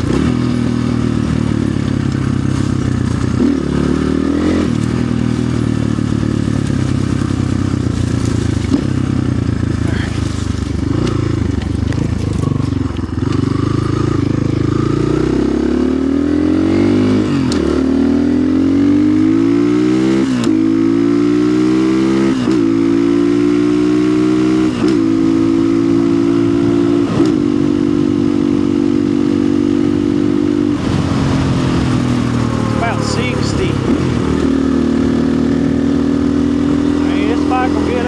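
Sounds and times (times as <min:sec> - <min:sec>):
dirt bike engine upshifting: 0:00.0 - 0:15.6, 0:29.0 - 0:38.0.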